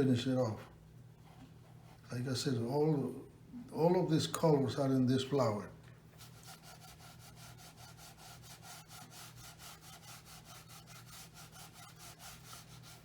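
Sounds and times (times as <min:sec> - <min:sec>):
low steady hum: 0:00.0 - 0:13.0
paintbrush scrubbing on paper: 0:06.2 - 0:13.0.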